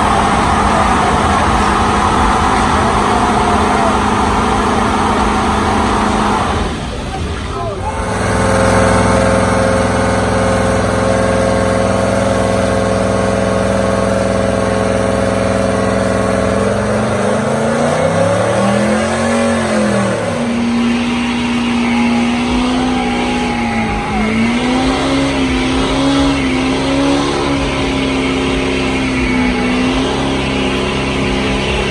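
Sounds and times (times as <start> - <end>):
harsh hiss: 0.0 - 31.9
truck engine revving: 0.0 - 31.9.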